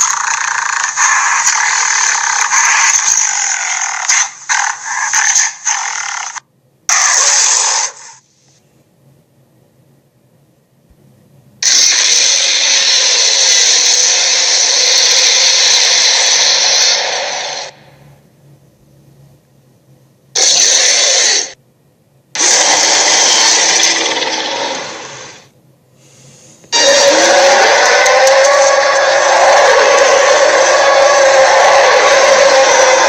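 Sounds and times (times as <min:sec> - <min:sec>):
dragon roaring: 0:22.4 - 0:25.4, 0:26.7 - 0:33.0.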